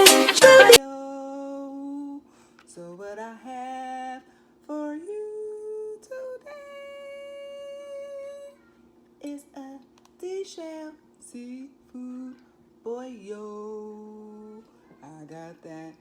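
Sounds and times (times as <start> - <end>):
loud music track: 0.0 - 0.8
woman singing long notes: 0.0 - 2.2.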